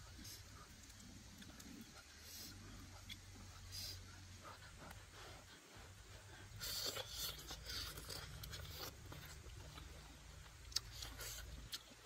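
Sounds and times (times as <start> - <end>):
crunchy chewing: 0.0 - 12.0.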